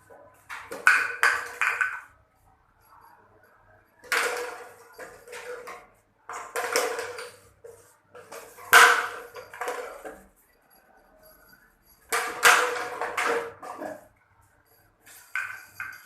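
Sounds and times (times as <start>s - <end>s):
bottle clattering and rattling: 0.1s - 2.2s, 3.9s - 10.4s, 11.2s - 14.2s, 15.0s - 16.0s.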